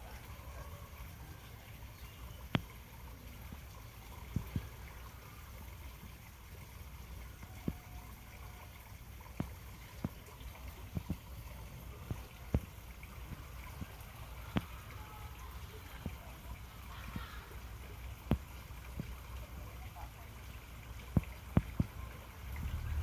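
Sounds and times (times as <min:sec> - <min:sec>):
water trickling: 0:00.0 - 0:23.0
steady low rumble: 0:22.4 - 0:23.0.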